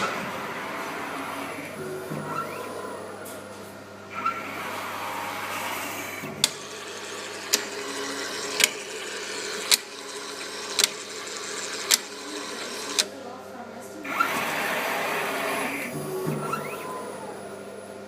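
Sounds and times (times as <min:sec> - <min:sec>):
machine mechanical hum: 0:00.0 - 0:18.0
sharp mechanical clicks: 0:06.4 - 0:06.7, 0:07.4 - 0:08.9, 0:09.5 - 0:13.1.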